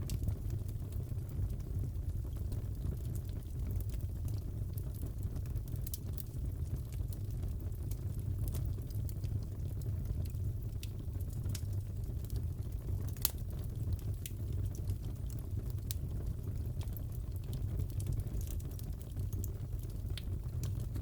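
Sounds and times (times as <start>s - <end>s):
fireplace logs crackling and popping: 0.0s - 21.0s.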